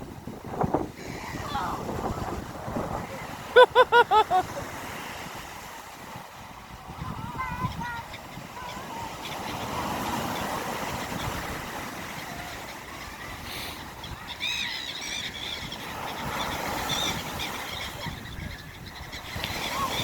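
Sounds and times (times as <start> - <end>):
wind rushing: 0.0 - 5.4
sea surf: 0.0 - 20.0
high squealing calls: 14.0 - 20.0.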